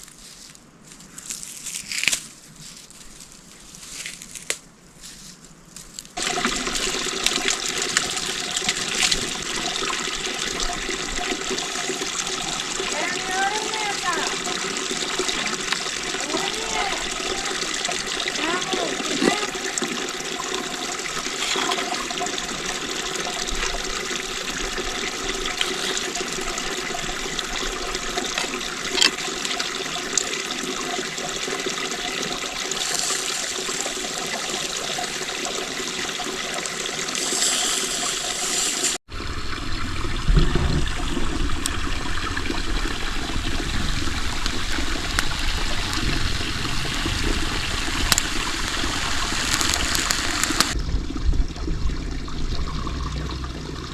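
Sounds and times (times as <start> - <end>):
running water: 6.2 - 53.9
deep rumble: 50.7 - 53.9.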